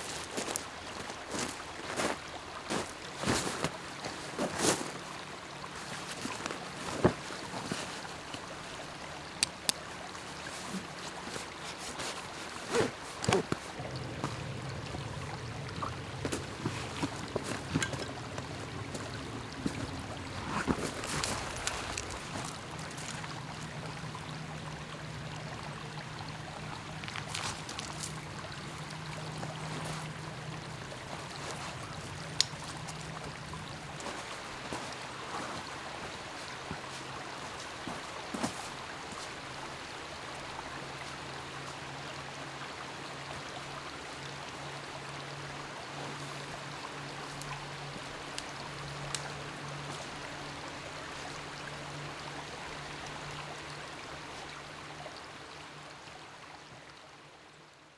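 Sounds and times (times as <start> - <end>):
water trickling and lapping: 0.0 - 57.7
low hum: 13.6 - 34.4.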